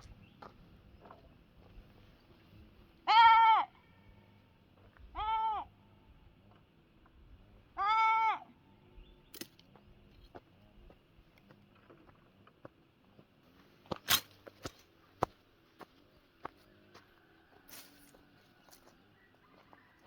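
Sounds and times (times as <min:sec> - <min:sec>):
goat bleating: 0:03.0 - 0:03.8, 0:05.1 - 0:05.8, 0:07.8 - 0:08.5.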